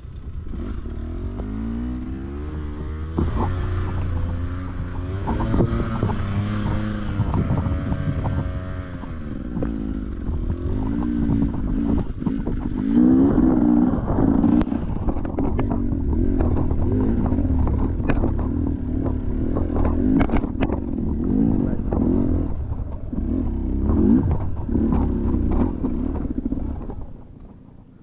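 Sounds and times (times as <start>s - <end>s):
dirt bike engine revving: 0.4s - 27.1s
knocks and clatter: 3.1s - 28.0s.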